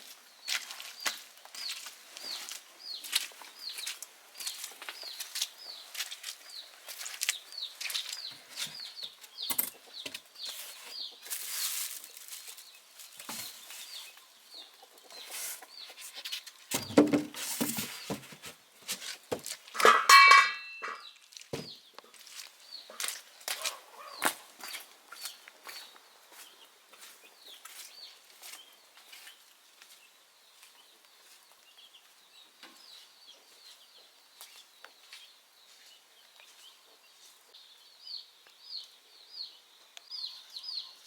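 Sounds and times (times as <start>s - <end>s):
chicks peeping: 0.3s - 16.7s, 21.0s - 41.0s
rustle: 10.3s - 20.2s.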